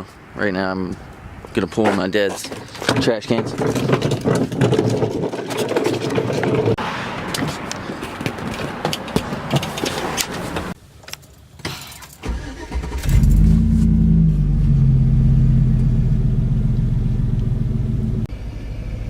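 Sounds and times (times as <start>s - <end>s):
truck engine starting and idling: 12.2s - 19.0s.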